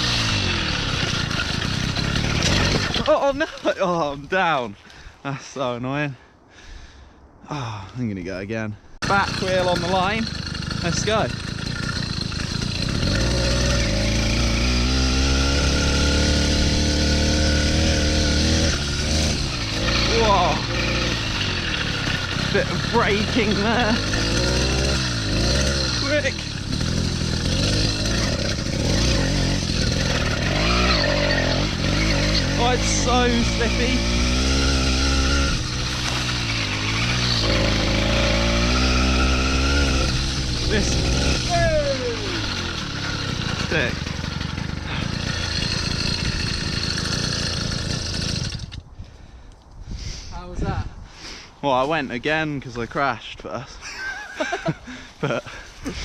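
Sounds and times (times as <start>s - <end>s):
two-stroke engine running: 0.0s - 3.7s, 9.0s - 48.8s.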